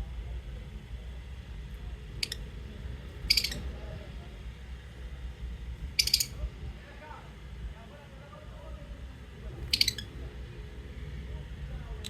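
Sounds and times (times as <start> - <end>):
steady low hum: 0.0 - 12.0
bird chirps: 3.2 - 3.6, 6.0 - 6.3, 9.7 - 10.1.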